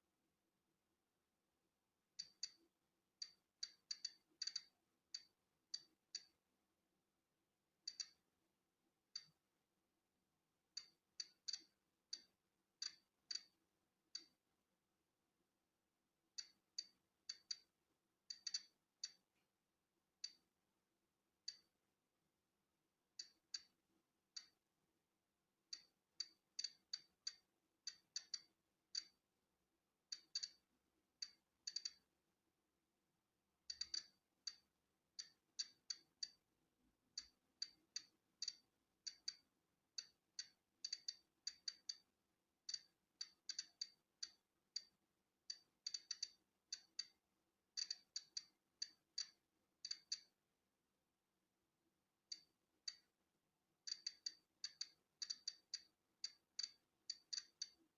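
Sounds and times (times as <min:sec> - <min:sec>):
geiger counter clicking: 0:02.2 - 0:06.4, 0:07.9 - 0:08.2, 0:10.8 - 0:13.6, 0:16.4 - 0:17.7, 0:18.3 - 0:19.2, 0:21.5 - 0:21.7, 0:23.2 - 0:23.8, 0:24.4 - 0:24.6, 0:25.7 - 0:29.2, 0:30.1 - 0:30.6, 0:31.2 - 0:32.1, 0:33.6 - 0:36.4, 0:37.2 - 0:39.4, 0:40.0 - 0:42.1, 0:42.7 - 0:47.2, 0:47.8 - 0:50.4, 0:52.3 - 0:53.1, 0:53.8 - 0:57.8.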